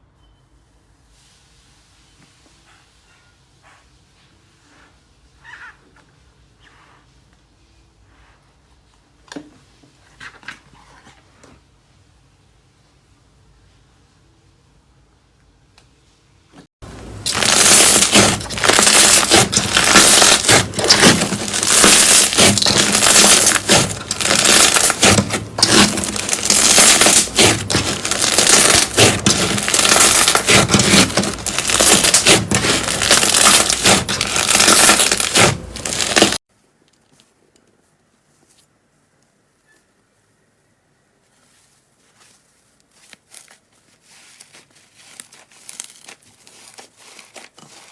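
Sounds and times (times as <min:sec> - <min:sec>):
slime crackling and crunching: 0:17.2 - 0:36.4, 0:43.2 - 0:47.9.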